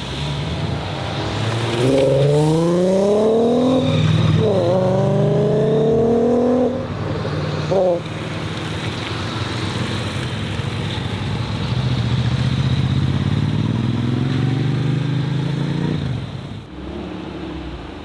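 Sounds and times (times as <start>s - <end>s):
car engine accelerating hard: 0.0s - 8.1s, 11.6s - 18.0s.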